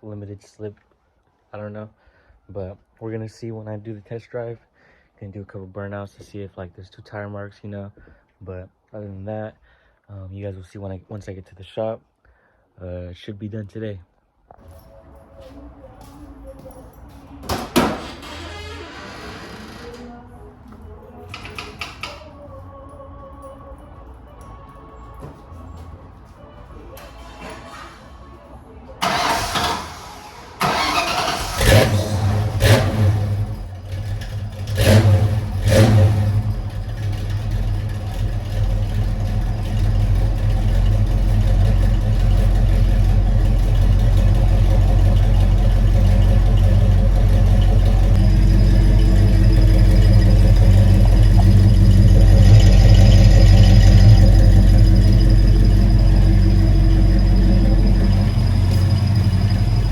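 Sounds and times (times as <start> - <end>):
car engine revving and idling: 30.7 - 59.9.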